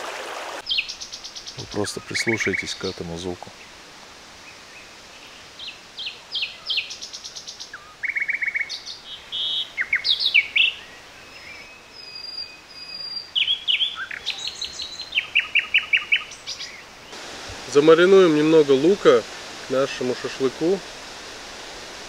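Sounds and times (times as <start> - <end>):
songbirds chirping and trilling: 0.6 - 3.8, 4.4 - 17.3.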